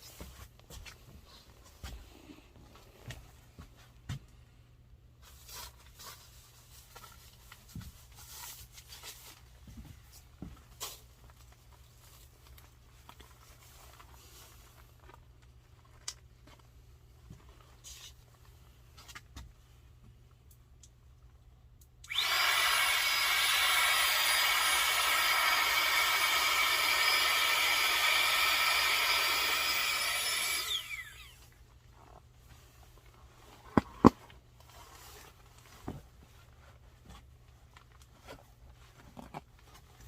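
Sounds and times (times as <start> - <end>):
electric motor whining: 22.1 - 31.4.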